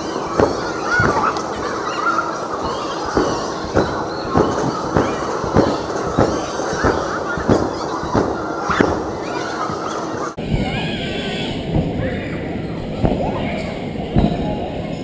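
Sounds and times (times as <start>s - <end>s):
loud thumps: 0.0s - 10.7s
noisy background: 0.0s - 15.0s.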